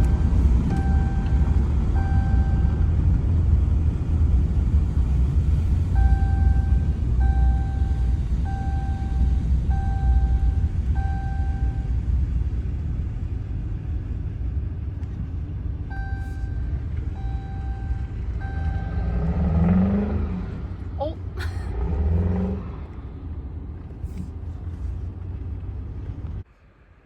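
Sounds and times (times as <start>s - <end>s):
vehicle warning chime beeping: 0.0s - 2.9s, 5.9s - 12.1s, 15.8s - 19.6s
diesel engine idling: 0.0s - 21.7s.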